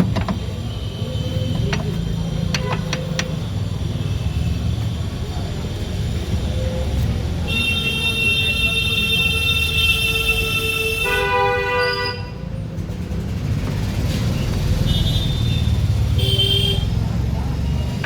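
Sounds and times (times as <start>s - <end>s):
low rumble of traffic: 0.0s - 18.0s
vehicle horn long honk: 7.5s - 12.4s.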